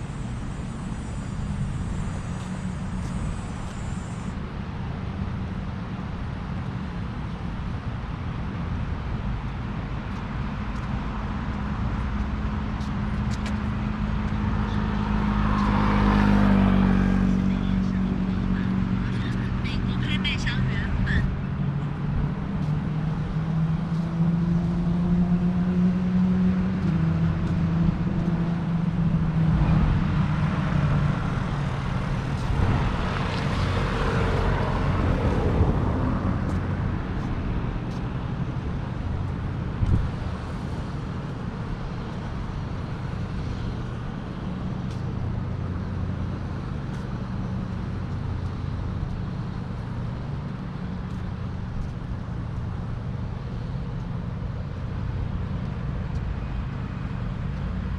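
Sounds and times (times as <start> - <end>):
traffic rumble: 0.0 - 57.9
vehicle engine humming: 0.0 - 57.9
vehicle passing loudly: 13.7 - 49.0.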